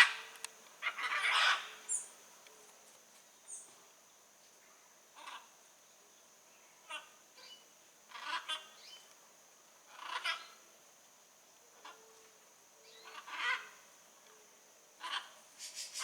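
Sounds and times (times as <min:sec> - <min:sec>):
macaw squawking: 0:00.8 - 0:01.7.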